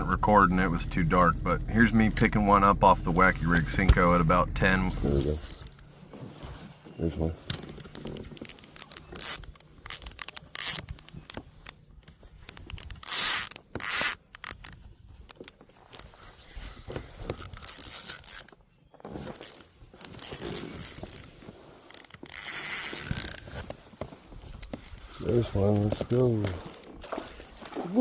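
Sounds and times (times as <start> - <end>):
fishing reel clicking and ratcheting: 7.5 - 11.8, 12.4 - 16.0, 16.6 - 18.6, 19.4 - 21.3, 21.9 - 23.8, 24.6 - 26.9.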